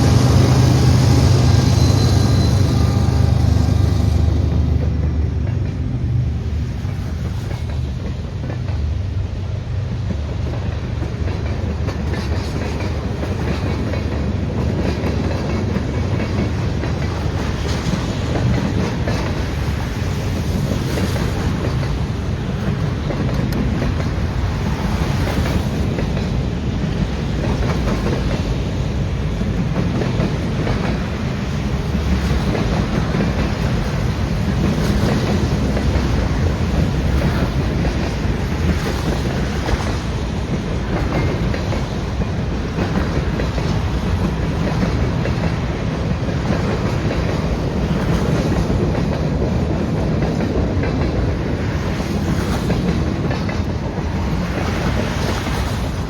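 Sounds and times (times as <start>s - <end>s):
railcars rumbling past: 0.0s - 56.0s
wheels clicking over rail joints: 1.8s - 56.0s.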